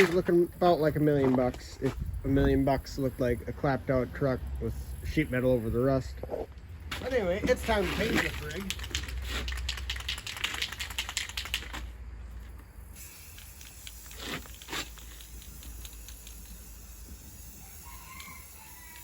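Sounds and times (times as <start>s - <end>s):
spray can ball rattling: 7.0s - 19.0s
spray bursts: 12.8s - 19.0s.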